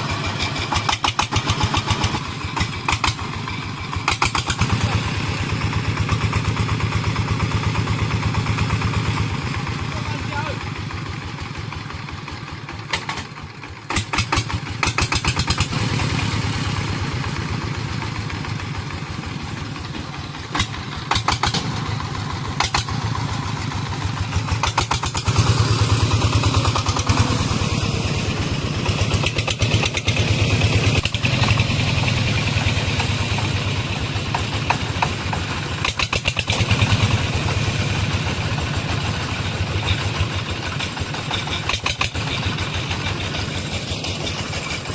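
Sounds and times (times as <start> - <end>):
diesel engine chugging: 0.0 - 44.9
rattling clatter: 38.5 - 44.9.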